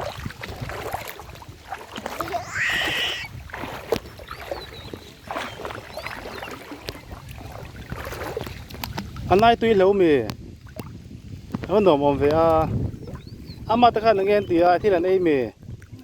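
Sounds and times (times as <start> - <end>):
small splashes and knocks: 0.0 - 2.6, 3.4 - 9.5, 10.2 - 13.3
river water flowing and splashing: 0.0 - 16.0.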